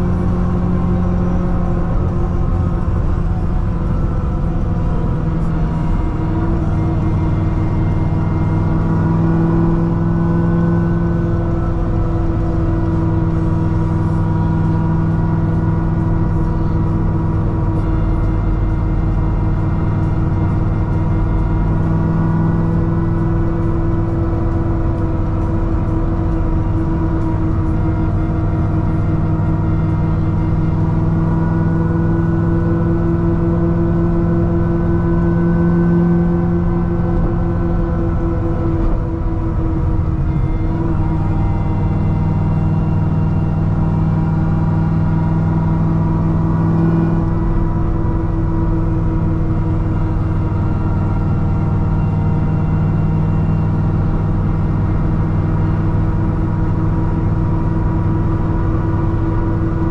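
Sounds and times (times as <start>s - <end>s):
car engine droning at cruise: 0.0s - 59.9s.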